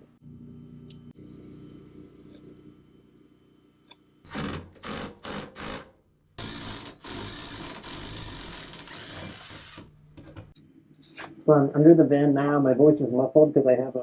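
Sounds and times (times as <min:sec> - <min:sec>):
ratchet wrench ratcheting: 0:04.3 - 0:09.8.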